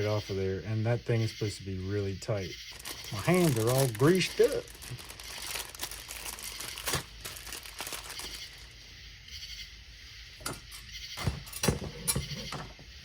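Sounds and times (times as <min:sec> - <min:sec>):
crinkling and rustling: 0:02.7 - 0:08.7.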